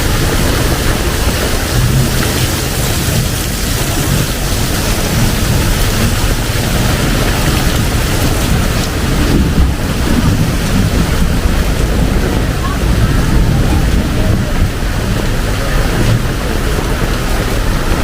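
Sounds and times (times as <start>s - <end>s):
heavy rain pouring: 0.0s - 18.0s
low thunder rumble: 0.0s - 18.0s.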